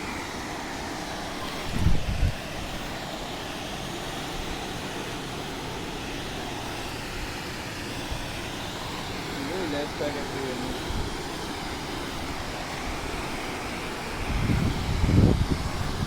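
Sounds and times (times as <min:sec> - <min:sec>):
wind rushing over microphone: 0:01.4 - 0:03.0, 0:08.0 - 0:16.0.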